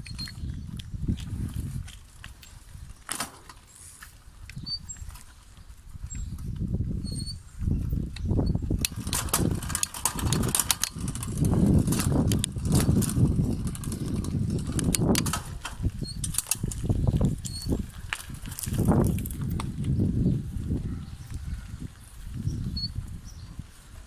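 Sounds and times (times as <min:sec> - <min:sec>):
wind buffeting microphone: 0:00.0 - 0:03.1, 0:04.2 - 0:24.0
sharp clicks and rattles: 0:08.1 - 0:20.0.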